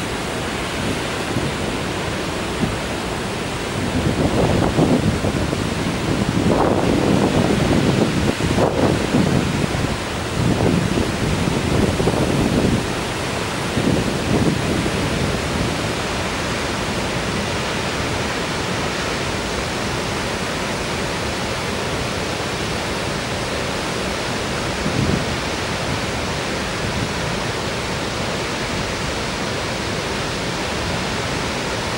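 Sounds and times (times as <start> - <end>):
waterfall rushing: 0.0 - 31.9
wind buffeting microphone: 0.6 - 17.7, 24.6 - 28.0.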